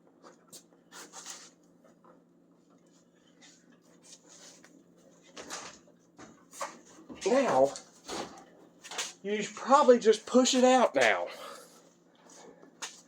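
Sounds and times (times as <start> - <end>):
steady low hum: 0.0 - 13.0
scrapes and rubs of tools: 0.9 - 1.6.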